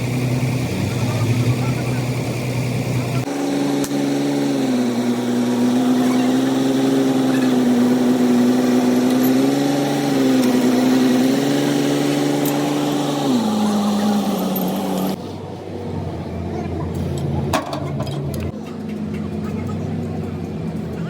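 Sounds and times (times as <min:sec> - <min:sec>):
machine motor humming: 0:00.0 - 0:15.2.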